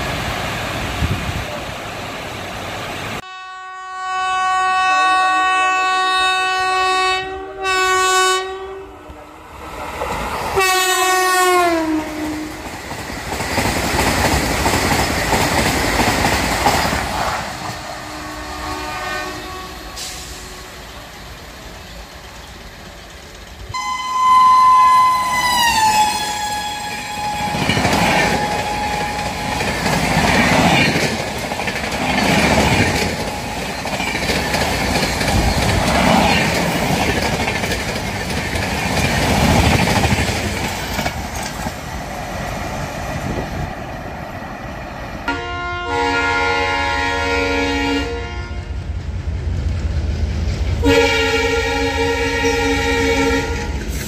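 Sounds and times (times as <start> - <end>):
train horn blaring: 3.2 - 9.5, 10.6 - 12.7, 17.9 - 21.0, 23.7 - 29.8, 45.2 - 48.9, 50.8 - 53.9
train coaches rushing past: 9.0 - 54.0.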